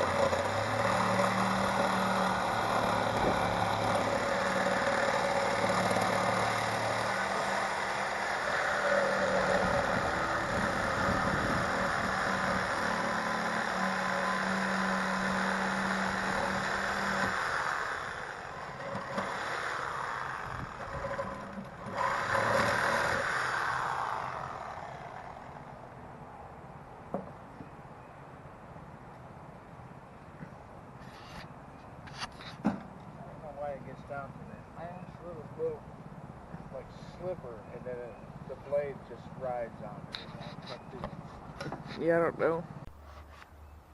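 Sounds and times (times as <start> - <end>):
motor running unevenly: 0.0 - 25.8.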